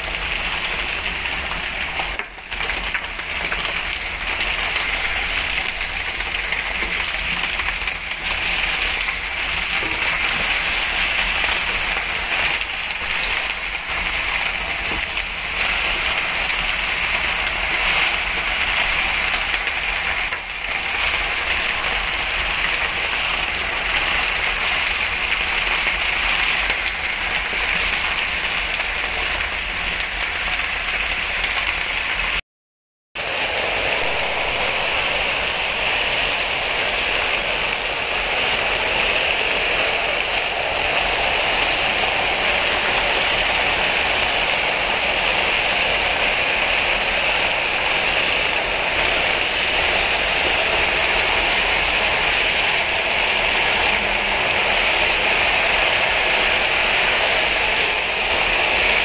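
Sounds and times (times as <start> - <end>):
vegetables sizzling in hot oil: 0.0 - 32.4.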